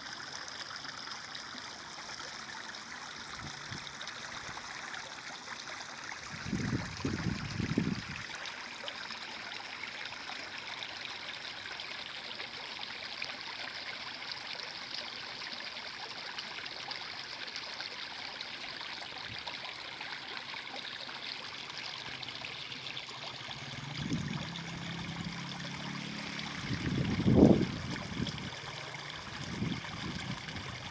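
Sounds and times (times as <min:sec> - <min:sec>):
stream flowing: 0:00.0 - 0:30.9
low rumbling bumps: 0:23.4 - 0:30.9.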